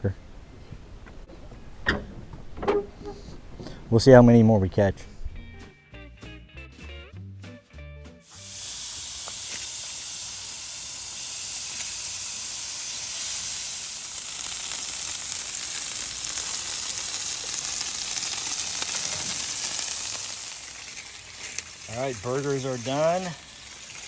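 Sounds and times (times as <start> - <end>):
patties sizzling on a grill: 8.2 - 24.0.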